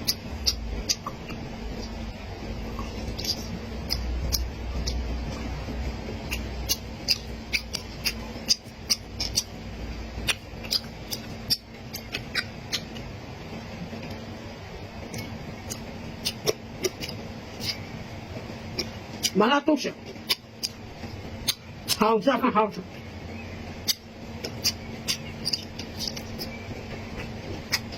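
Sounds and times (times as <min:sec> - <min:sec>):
wet mouth clicks and smacks: 0:00.0 - 0:02.0, 0:02.7 - 0:05.0, 0:06.3 - 0:09.6, 0:10.2 - 0:13.0, 0:15.1 - 0:17.8, 0:18.8 - 0:19.4, 0:20.1 - 0:20.8, 0:21.4 - 0:22.1, 0:23.8 - 0:26.6, 0:27.2 - 0:27.9
person chewing: 0:00.0 - 0:13.2, 0:14.9 - 0:19.4, 0:20.0 - 0:22.1, 0:23.8 - 0:27.9.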